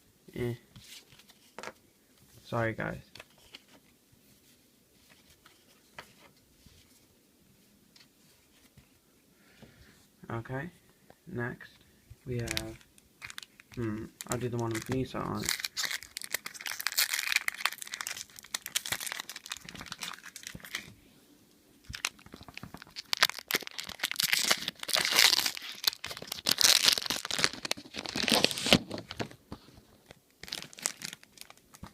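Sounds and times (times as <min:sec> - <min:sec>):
wrapper tearing and crinkling: 0:12.4 - 0:20.9, 0:21.8 - 0:29.4, 0:30.4 - 0:31.9.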